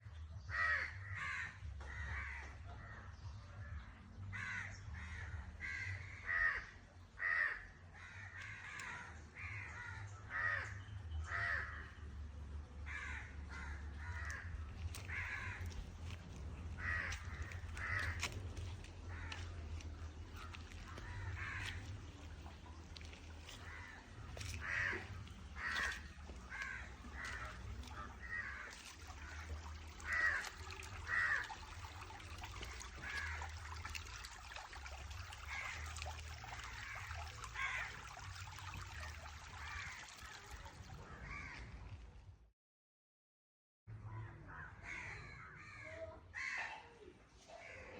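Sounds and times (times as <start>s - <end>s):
birds calling harshly: 12.9s - 41.6s
steady low rumble: 13.8s - 30.0s.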